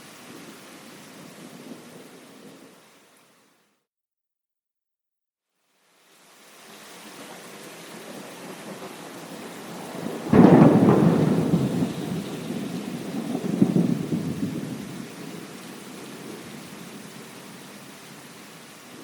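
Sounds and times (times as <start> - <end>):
steady rain: 0.0 - 3.8, 5.5 - 19.0
thunder clap and rumble: 8.6 - 15.5.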